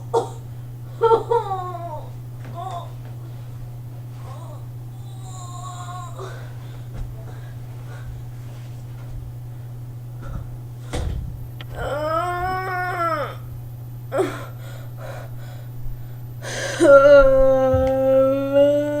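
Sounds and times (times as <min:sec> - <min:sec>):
low electrical hum: 0:00.0 - 0:19.0
breathy sounds: 0:02.6 - 0:08.3, 0:14.1 - 0:17.0.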